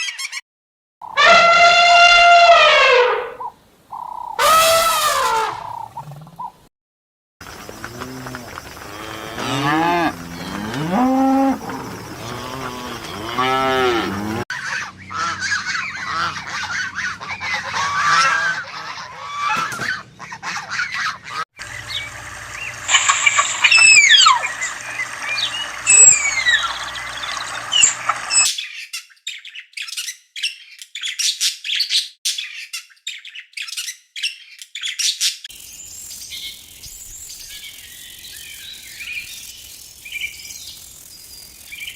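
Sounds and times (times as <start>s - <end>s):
bird calls honking and squawking: 1.0s - 6.5s, 7.7s - 29.9s
insects chirping: 7.4s - 14.4s, 21.6s - 28.4s, 35.5s - 41.9s
cattle mooing: 7.8s - 14.4s.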